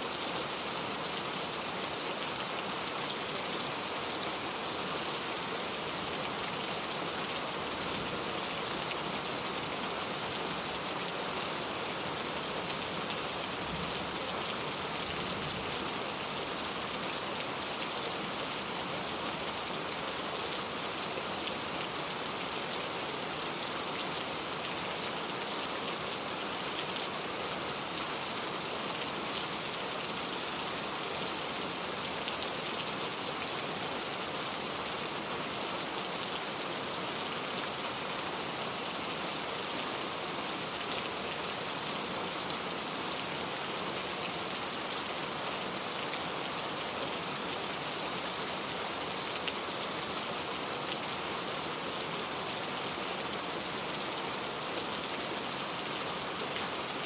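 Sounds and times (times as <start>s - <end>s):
rain falling on a surface: 0.0s - 57.0s.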